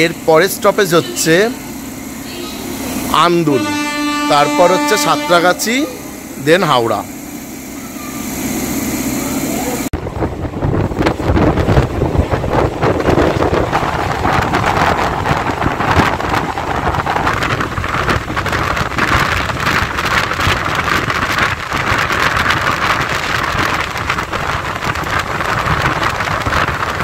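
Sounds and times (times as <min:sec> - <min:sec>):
wheels clattering on rails: 0:06.3 - 0:27.0
wind rushing past door: 0:10.0 - 0:27.0.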